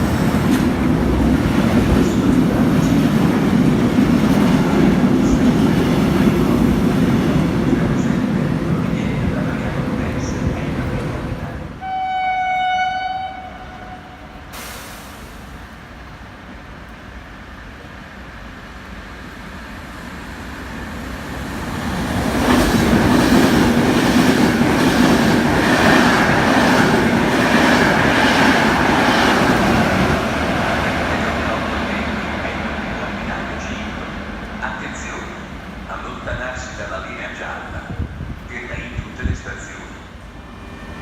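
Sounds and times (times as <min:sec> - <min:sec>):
train passing: 0:00.0 - 0:41.0
train horn: 0:11.8 - 0:14.5.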